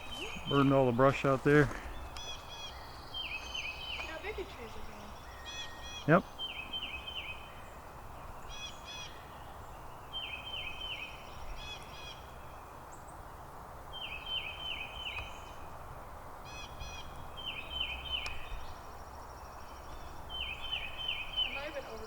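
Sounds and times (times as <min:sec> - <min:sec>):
steady outdoor hiss: 0:00.0 - 0:22.0
short ringing bird calls: 0:02.1 - 0:07.8.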